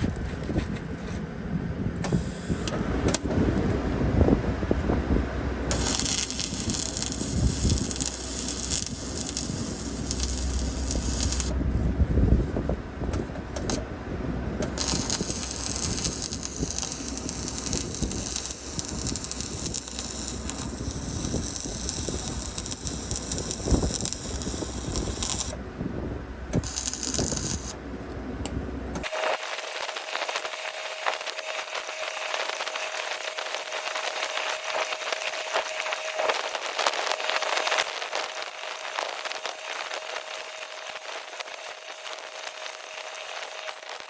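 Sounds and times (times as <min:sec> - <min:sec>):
high welding hiss: 0:05.7 - 0:11.5, 0:14.8 - 0:25.6, 0:26.6 - 0:27.8, 0:29.0 - 0:44.0
arc welding crackle: 0:05.7 - 0:11.6, 0:13.6 - 0:13.8, 0:14.6 - 0:25.6, 0:26.6 - 0:27.8, 0:29.0 - 0:44.0.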